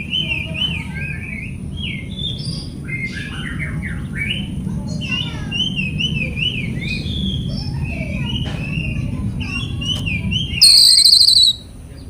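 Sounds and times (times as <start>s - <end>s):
bird warbling song: 0.0s - 12.0s
harsh scratchy bird squawks: 10.6s - 11.6s.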